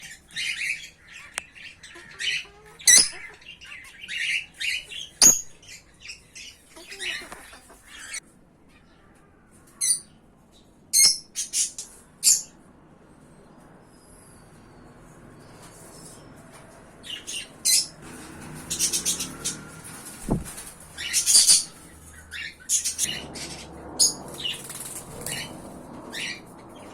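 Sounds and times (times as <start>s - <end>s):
parrots squawking and chirping: 0.0s - 9.0s, 17.0s - 26.9s.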